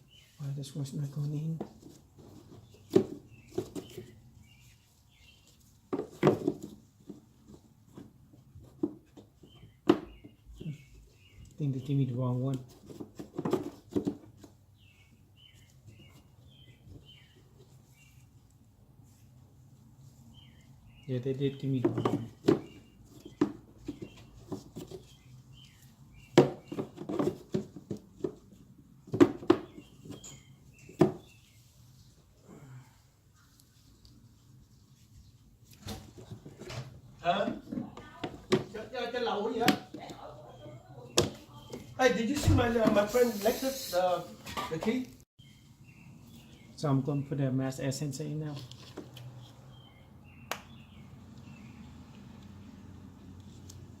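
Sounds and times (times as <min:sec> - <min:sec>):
air filter knocking and clattering: 0:21.8 - 0:24.7
plastic parts knocking: 0:21.8 - 0:25.1, 0:26.3 - 0:30.2.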